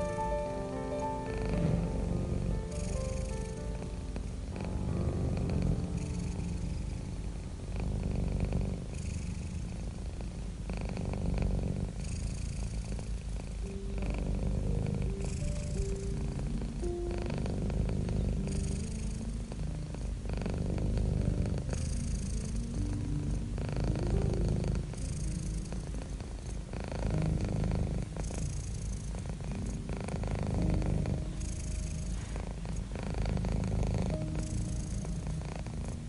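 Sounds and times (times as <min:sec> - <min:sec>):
cat purring: 0:00.0 - 0:36.0.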